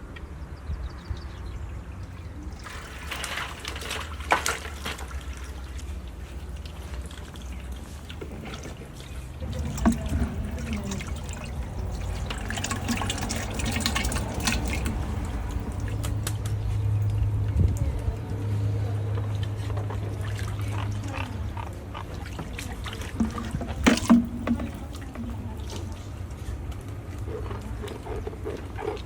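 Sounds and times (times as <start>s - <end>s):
water trickling and splashing: 0.0s - 29.0s
steady low rumble: 9.3s - 22.0s.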